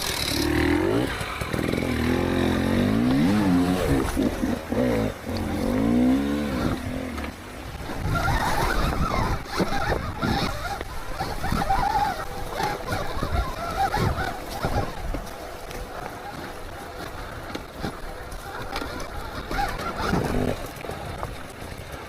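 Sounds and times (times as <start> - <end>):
electric dirt bike motor whining: 0.0 - 22.0.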